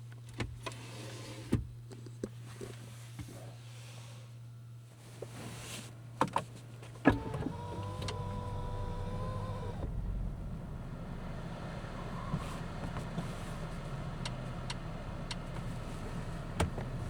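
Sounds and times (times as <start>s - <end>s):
low steady rumble: 6.0s - 17.0s
small electric motor whirring: 7.1s - 10.0s
clicks inside car: 14.2s - 17.0s.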